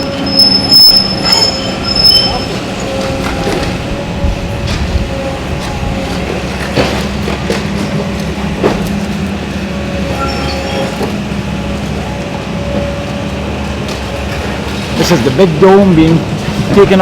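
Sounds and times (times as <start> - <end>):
shrill metallic squealing: 0.0 - 3.8, 10.0 - 11.1.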